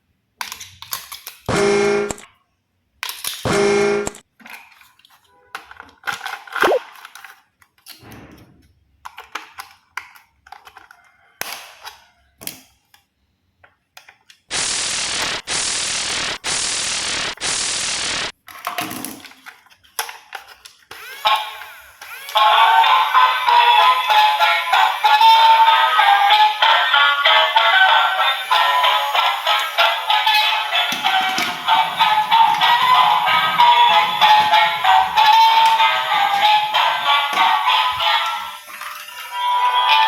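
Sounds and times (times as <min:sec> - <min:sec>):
plastic toys clicking and knocking: 0:00.4 - 0:01.5, 0:03.0 - 0:03.5, 0:04.3 - 0:08.1, 0:08.9 - 0:14.5, 0:18.4 - 0:22.4, 0:28.5 - 0:40.0
bursts of hiss: 0:14.5 - 0:18.3.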